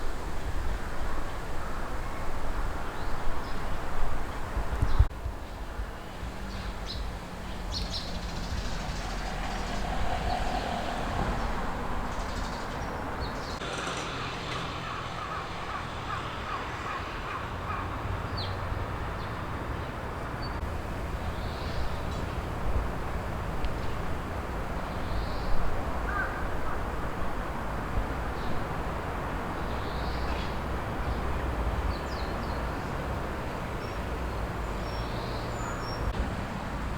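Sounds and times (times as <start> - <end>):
crow cawing: 14.8 - 18.0, 26.1 - 26.5.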